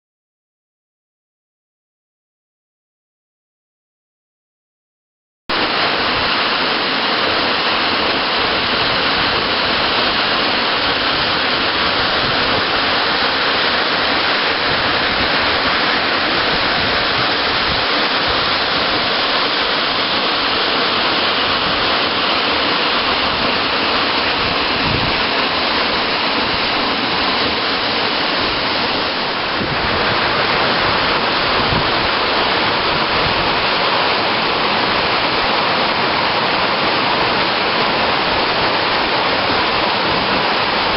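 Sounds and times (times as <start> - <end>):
waterfall rushing: 5.5 - 40.9.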